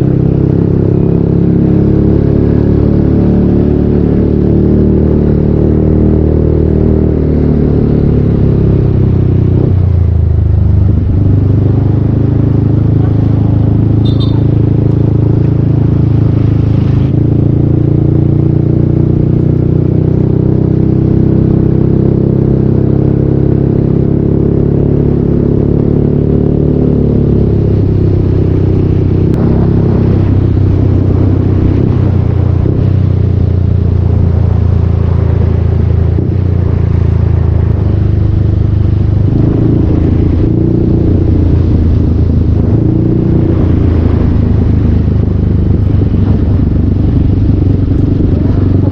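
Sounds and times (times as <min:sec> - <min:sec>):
scooter engine running: 0:09.8 - 0:17.8, 0:43.5 - 0:48.9.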